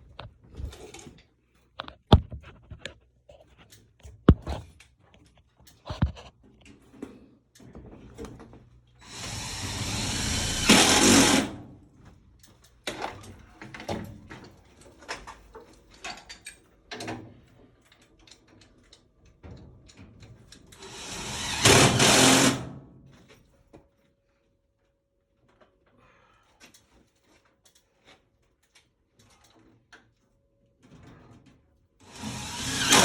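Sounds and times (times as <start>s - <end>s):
power drill running: 9.0s - 11.7s, 20.8s - 22.8s, 32.0s - 33.0s.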